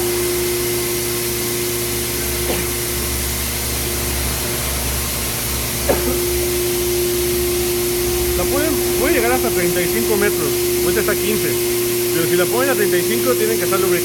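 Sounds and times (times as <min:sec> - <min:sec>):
machine whirring and humming: 0:00.0 - 0:14.0.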